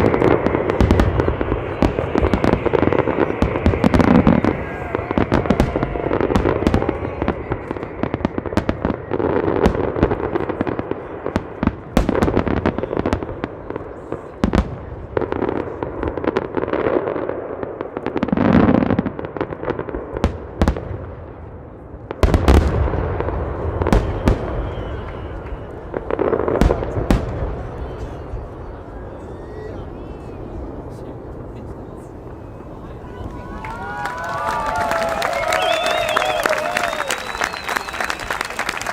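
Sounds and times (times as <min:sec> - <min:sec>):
continuous fireworks crackling: 0:00.0 - 0:38.9
fireworks cracks and bangs: 0:00.0 - 0:38.9.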